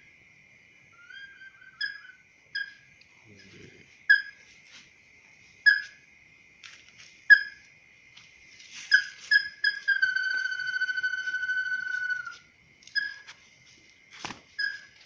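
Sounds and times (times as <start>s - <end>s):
whistled bird lure calls: 8.9s - 13.3s, 14.6s - 14.9s.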